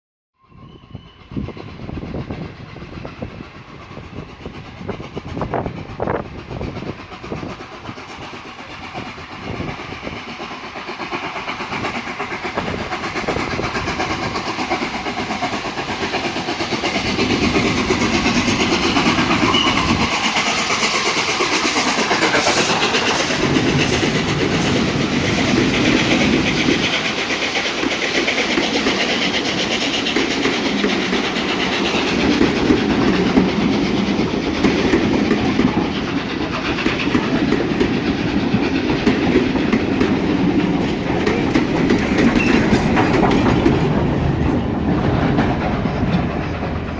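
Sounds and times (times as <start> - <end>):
steam train passing: 0.4 - 46.9
wheels clattering over rail joints: 11.2 - 46.9.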